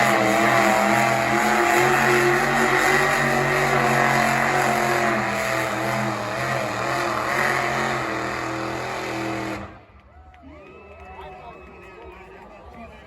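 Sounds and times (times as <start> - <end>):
loud truck engine revving high: 0.0 - 10.0.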